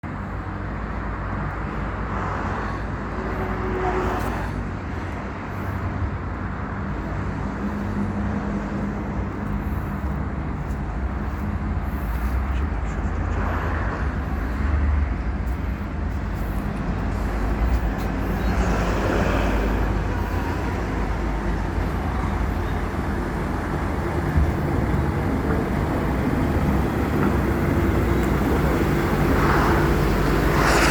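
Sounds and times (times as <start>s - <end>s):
truck engine rumbling: 2.8s - 30.9s.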